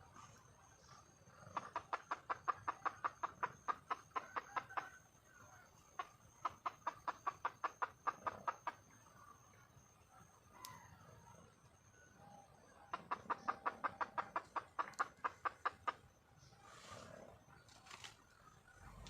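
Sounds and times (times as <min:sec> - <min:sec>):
hen clucking: 0:01.5 - 0:05.0, 0:05.7 - 0:08.9, 0:12.9 - 0:16.1.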